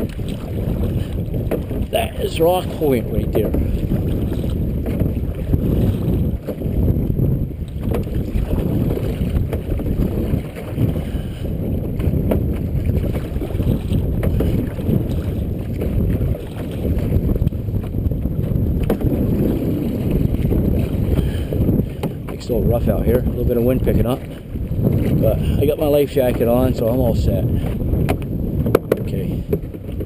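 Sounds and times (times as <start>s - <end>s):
wind buffeting microphone: 0.0s - 30.0s
small knocks: 28.1s - 29.8s.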